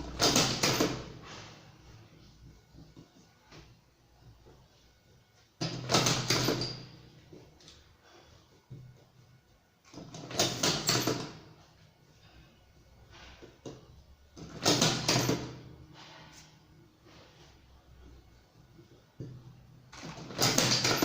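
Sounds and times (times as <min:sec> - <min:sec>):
rolling machine sliding and rattling: 0:19.9 - 0:21.0.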